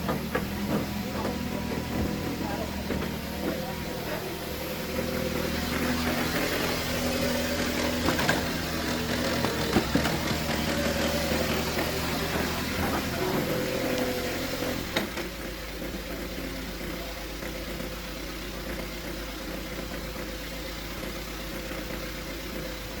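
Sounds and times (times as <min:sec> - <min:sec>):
sharp knocks: 0:00.0 - 0:03.8
excavator diesel engine running: 0:00.0 - 0:23.0.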